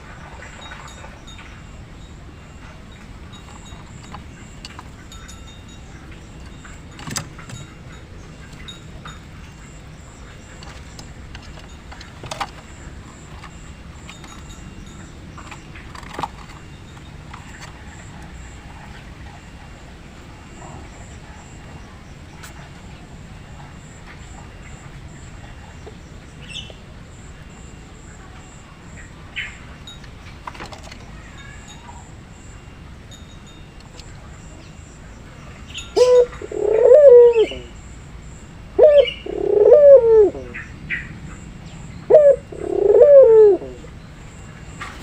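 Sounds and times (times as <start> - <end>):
bird chirps: 33.5 - 43.0.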